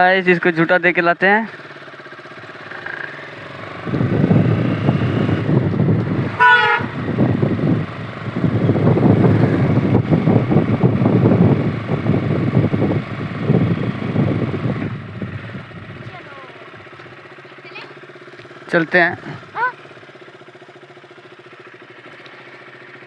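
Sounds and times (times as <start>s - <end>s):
motorcycle engine pulsing: 0.0s - 23.0s
short high horn toot: 6.4s - 7.0s.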